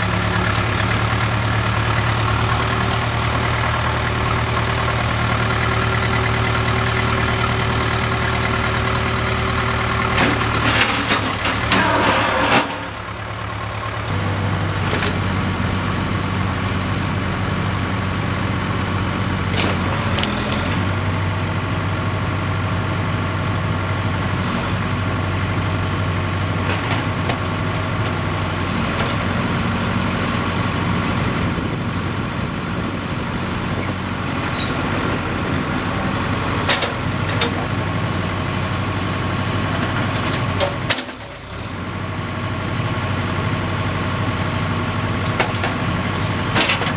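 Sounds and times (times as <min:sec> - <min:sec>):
diesel engine idling: 0:00.0 - 0:46.9.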